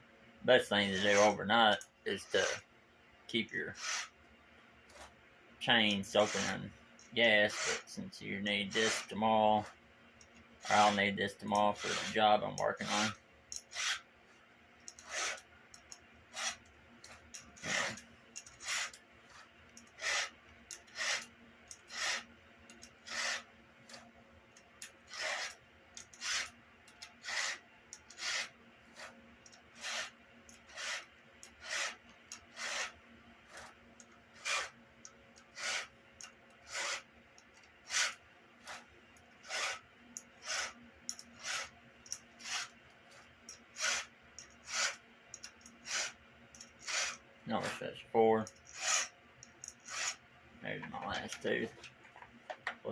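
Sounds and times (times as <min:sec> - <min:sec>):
hand file rasping chainsaw chain: 0:00.7 - 0:02.6, 0:03.7 - 0:04.1, 0:05.8 - 0:09.7, 0:10.6 - 0:14.0, 0:14.9 - 0:24.0, 0:24.8 - 0:34.8, 0:35.4 - 0:37.1, 0:37.8 - 0:42.8, 0:43.5 - 0:47.7, 0:48.4 - 0:50.2.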